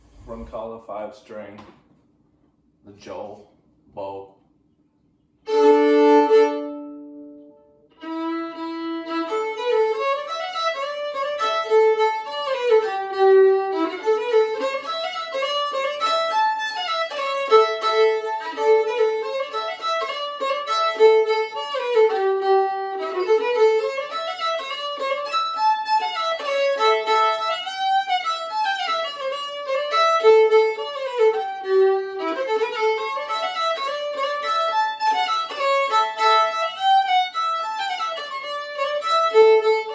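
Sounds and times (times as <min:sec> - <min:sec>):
bowed fiddle: 0:05.4 - 0:39.9.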